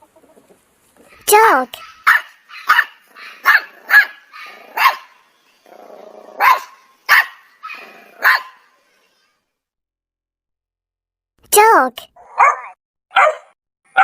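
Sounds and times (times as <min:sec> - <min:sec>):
dog barking: 0:01.2 - 0:05.2, 0:06.4 - 0:08.7, 0:12.2 - 0:14.0.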